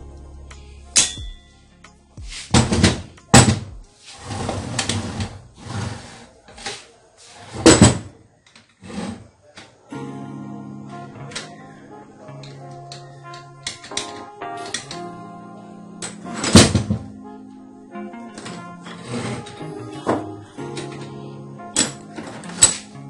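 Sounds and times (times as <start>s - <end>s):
background music: 0.0s - 6.2s, 9.8s - 23.0s.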